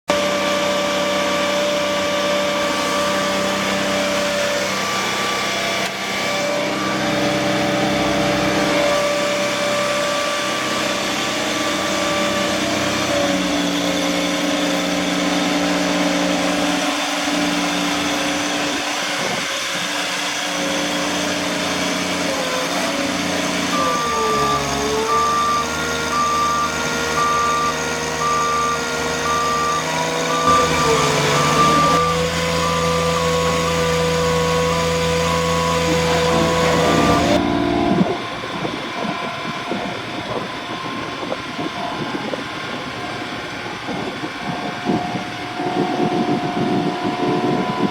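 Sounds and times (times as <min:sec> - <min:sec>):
truck engine running: 0:00.1 - 0:47.9
backup alarm beeping: 0:23.7 - 0:33.7.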